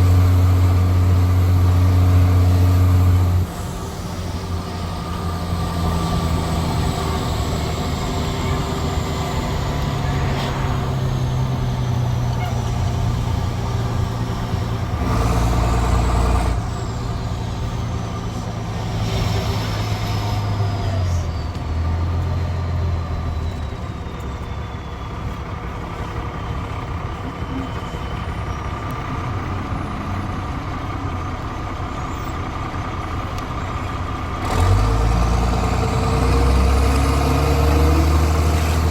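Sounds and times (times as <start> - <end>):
bus diesel engine running: 0.0 - 38.9
faint high whistle: 23.0 - 25.4.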